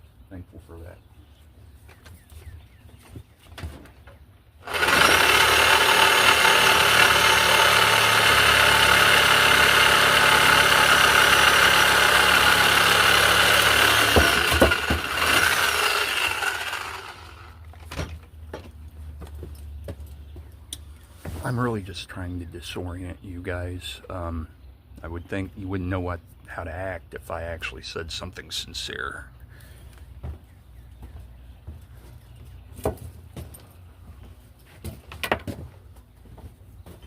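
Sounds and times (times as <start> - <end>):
motor-driven machine running: 4.6 - 17.7
sharp knocks: 13.8 - 15.4.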